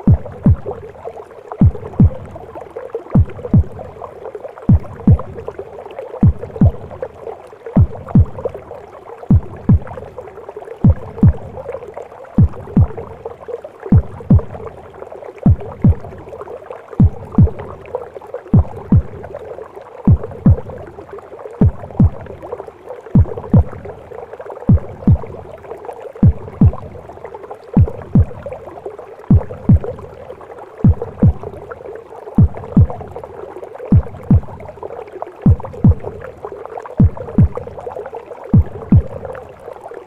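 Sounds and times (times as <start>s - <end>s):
heartbeat thumps: 0.0s - 0.9s, 1.6s - 2.6s, 3.2s - 4.1s, 4.7s - 5.6s, 6.2s - 7.2s, 7.8s - 8.7s, 9.3s - 10.2s, 10.8s - 11.8s, 12.4s - 13.3s, 13.9s - 14.8s, 15.4s - 16.4s, 17.0s - 17.9s, 18.5s - 19.5s, 20.1s - 21.0s, 21.6s - 22.5s, 23.2s - 24.1s, 24.7s - 25.6s, 26.2s - 28.6s, 29.2s - 30.2s, 30.8s - 31.8s, 32.4s - 33.3s, 33.9s - 34.8s, 35.4s - 36.4s, 37.0s - 37.9s, 38.5s - 39.5s
muffled whooshing womb noise: 0.0s - 40.0s.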